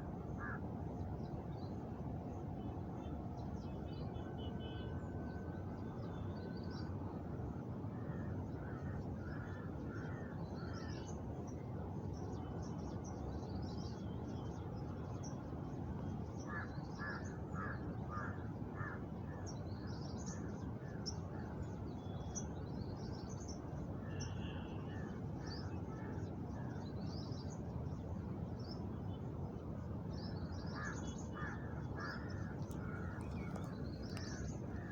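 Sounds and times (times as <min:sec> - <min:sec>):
small birds chirping: 0:32.1 - 0:34.6.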